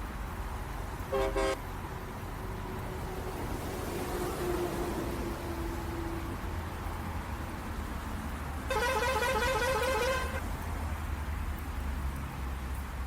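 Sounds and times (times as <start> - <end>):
vehicle horn blaring: 1.1 - 1.6, 8.7 - 10.4
truck engine droning: 8.7 - 10.4.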